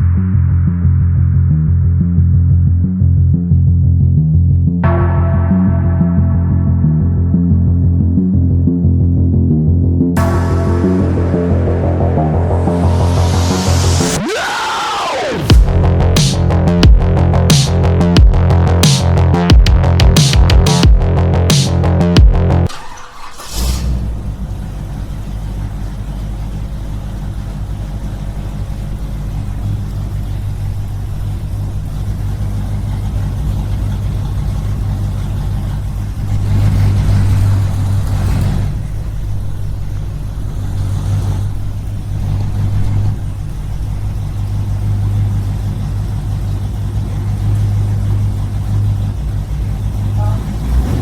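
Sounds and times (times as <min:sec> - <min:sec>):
rushing noise: 0:04.8 - 0:09.0, 0:10.2 - 0:24.8.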